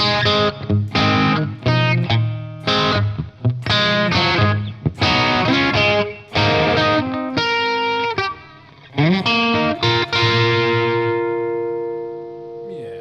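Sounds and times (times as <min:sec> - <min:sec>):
overdriven electric guitar: 0:00.0 - 0:13.0.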